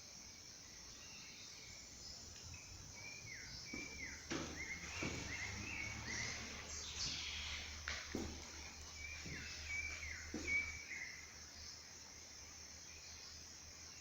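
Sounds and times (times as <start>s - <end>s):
high insect hiss: 0.0s - 14.0s
birds chirping: 0.5s - 12.1s
light knocks: 3.7s - 5.8s, 7.9s - 8.7s.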